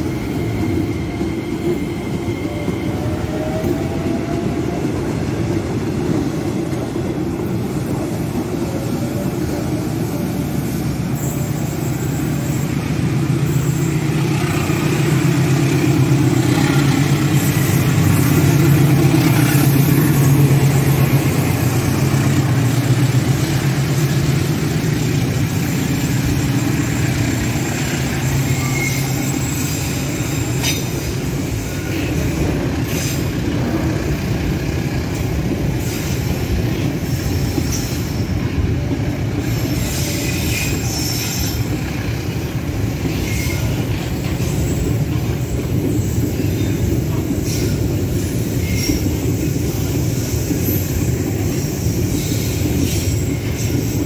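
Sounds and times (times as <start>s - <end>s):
locomotive engine drone: 6.7s - 35.8s.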